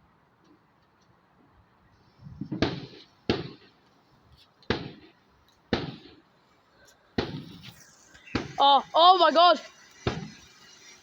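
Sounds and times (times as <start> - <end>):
firework bangs: 2.4 - 3.8, 4.6 - 6.4, 7.1 - 11.0.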